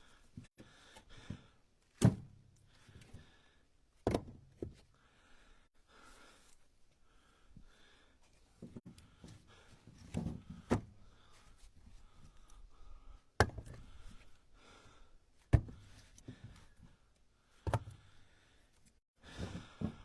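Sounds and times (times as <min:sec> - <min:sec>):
firewood knocking on a stack: 0:04.1 - 0:04.4.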